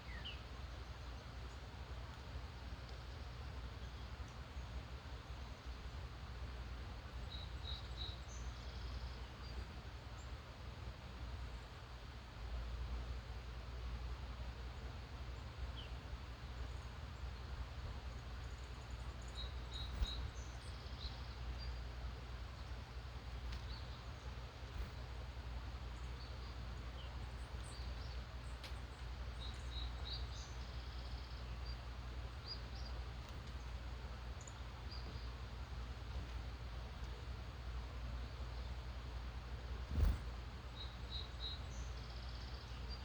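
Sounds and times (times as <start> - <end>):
distant songbirds chirping: 0.0 - 10.6, 11.2 - 43.0.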